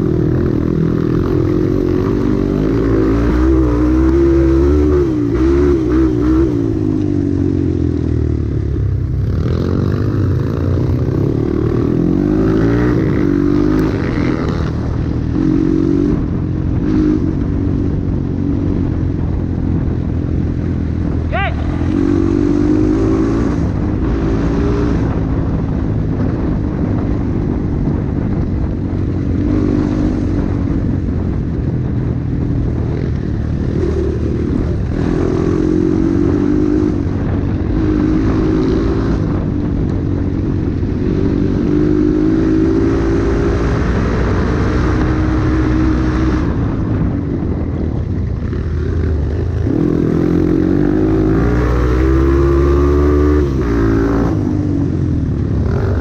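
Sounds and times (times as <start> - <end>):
dirt bike engine revving: 0.0 - 7.4, 9.2 - 17.4, 21.3 - 25.4, 55.6 - 56.0.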